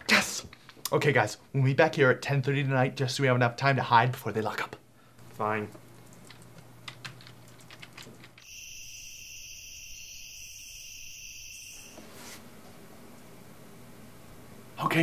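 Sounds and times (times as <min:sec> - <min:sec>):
crickets trilling: 0:08.4 - 0:12.0.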